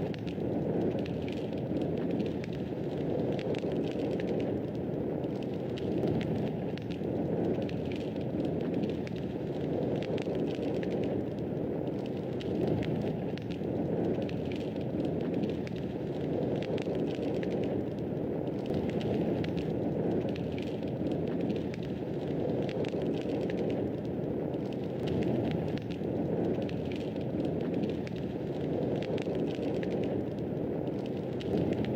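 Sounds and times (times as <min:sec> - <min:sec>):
fire crackling and popping: 0:00.0 - 0:31.9
low rush of flames: 0:00.0 - 0:31.9.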